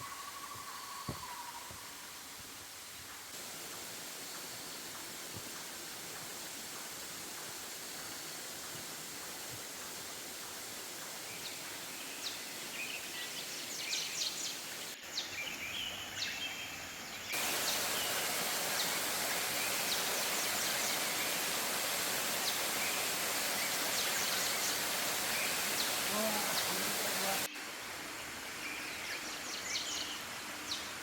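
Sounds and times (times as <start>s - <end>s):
waterfall rushing: 17.4s - 27.5s.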